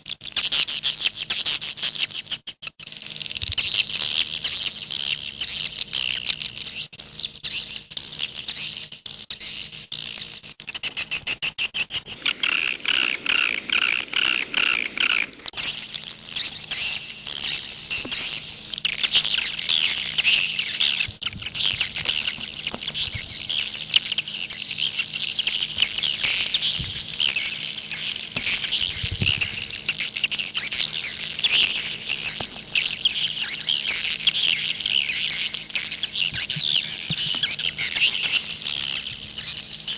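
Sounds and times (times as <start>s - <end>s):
faint steady hum: 0.0s - 39.9s
swiftlets chirping: 15.6s - 39.9s.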